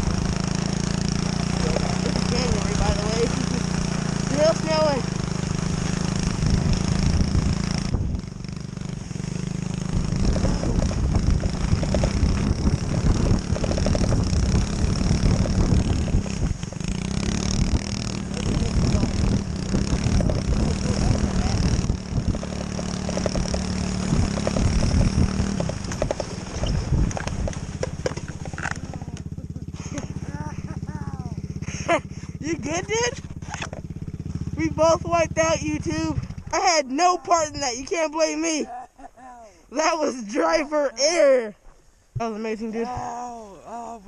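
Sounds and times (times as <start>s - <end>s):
constant rushing noise: 0.0s - 38.6s
motorbike engine under throttle: 0.0s - 38.6s.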